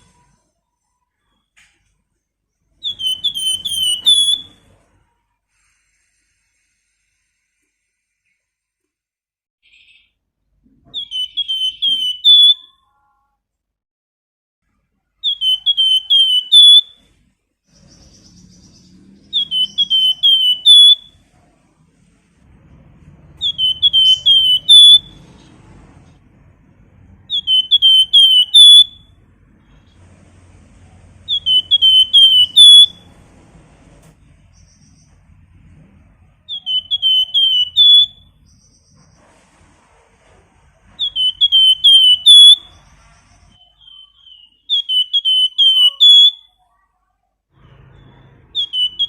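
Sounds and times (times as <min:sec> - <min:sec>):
songbird whistling: 0:02.7 - 0:04.7, 0:10.9 - 0:12.8, 0:15.2 - 0:17.1, 0:17.7 - 0:21.3, 0:23.4 - 0:25.4, 0:27.2 - 0:29.2, 0:31.2 - 0:33.1, 0:36.4 - 0:39.2, 0:40.9 - 0:46.6, 0:47.7 - 0:49.0.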